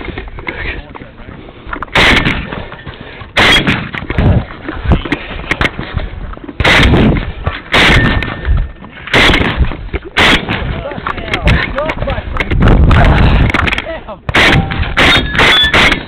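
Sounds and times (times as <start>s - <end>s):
loud gunshots: 1.9s - 2.5s, 3.4s - 4.4s, 6.6s - 8.4s, 9.1s - 10.8s, 14.3s - 16.0s
smaller gunshot cracks: 1.9s - 2.5s, 3.4s - 3.9s, 6.6s - 8.4s, 9.1s - 9.6s, 10.2s - 10.7s, 14.3s - 16.0s.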